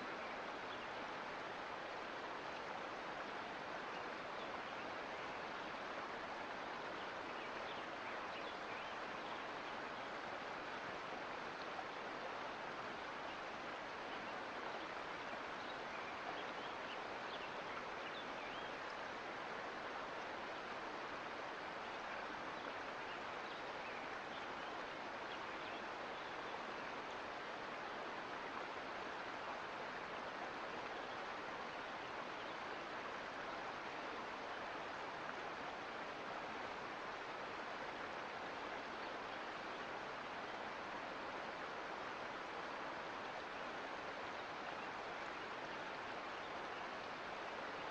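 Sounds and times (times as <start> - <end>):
creek water rushing: 0.0 - 47.9.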